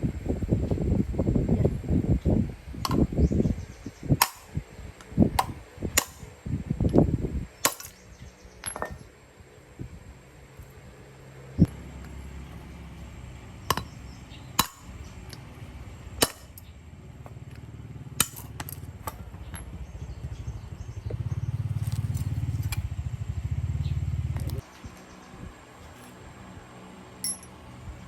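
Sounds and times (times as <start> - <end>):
sharp metallic clanks: 7.6 - 8.0, 13.6 - 15.6, 16.2 - 16.7, 18.2 - 19.8, 27.2 - 27.6
small diesel engine running: 11.0 - 24.6.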